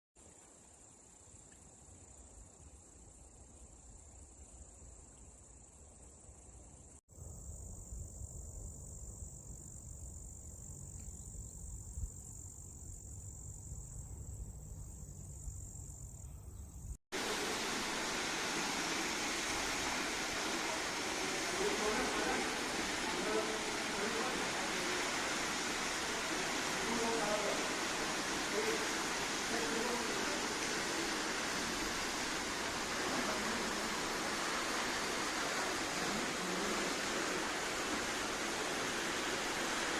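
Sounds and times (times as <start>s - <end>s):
high-pitched insect chorus: 0.2s - 39.9s
waterfall rushing: 17.1s - 39.9s.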